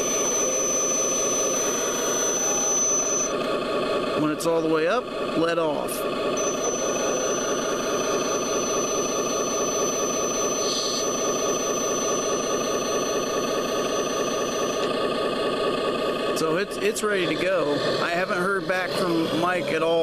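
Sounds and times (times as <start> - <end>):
thin high whine: 0.0 - 3.4, 6.3 - 15.1
hydraulic pump running: 0.0 - 20.0.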